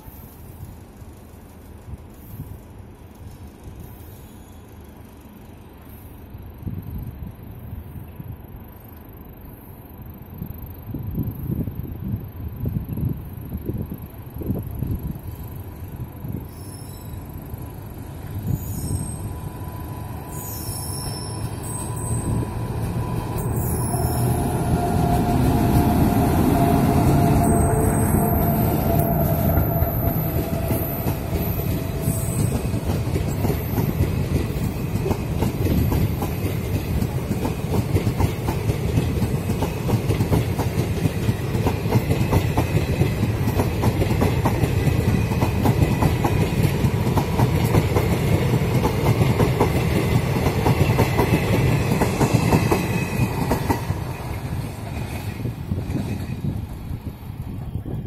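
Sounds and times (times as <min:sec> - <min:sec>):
electric locomotive whine: 0:00.0 - 0:58.0
low train rumble: 0:00.0 - 0:58.0
train wheels clickety-clack: 0:21.0 - 0:58.0.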